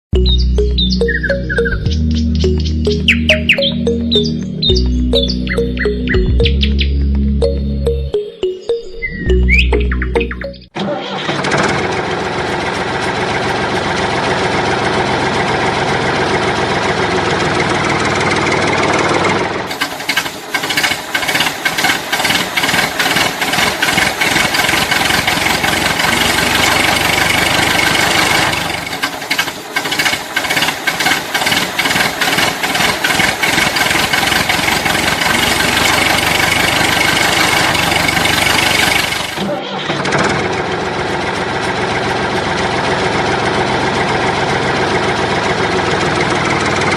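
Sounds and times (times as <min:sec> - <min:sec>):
tractor engine chugging: 0:10.4 - 0:46.9.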